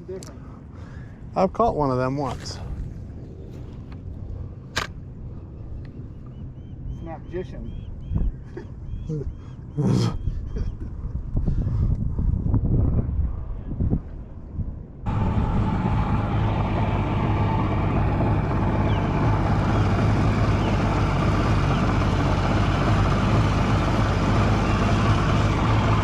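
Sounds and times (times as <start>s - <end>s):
outboard engine hum: 2.0s - 11.7s, 15.1s - 26.0s.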